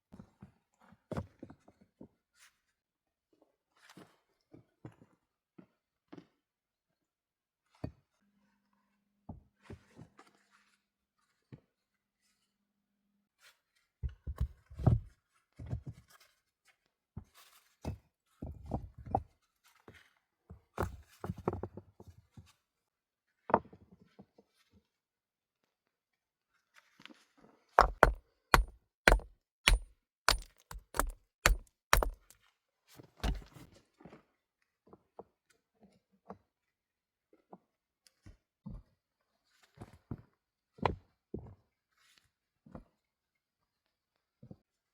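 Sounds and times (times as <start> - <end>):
knocks and thuds: 27.8 - 32.3.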